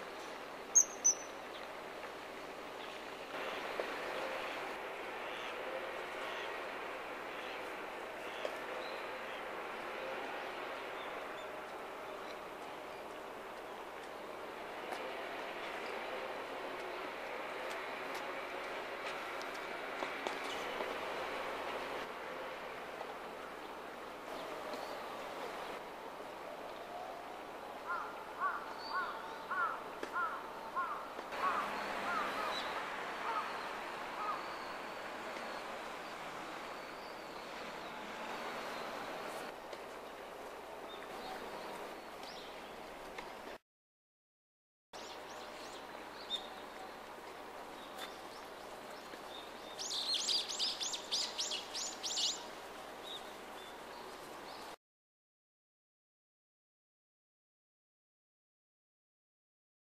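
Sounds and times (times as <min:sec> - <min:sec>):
steady background noise: 0:00.0 - 0:43.6
bird calling: 0:00.8 - 0:01.3, 0:27.9 - 0:33.6, 0:34.2 - 0:34.8.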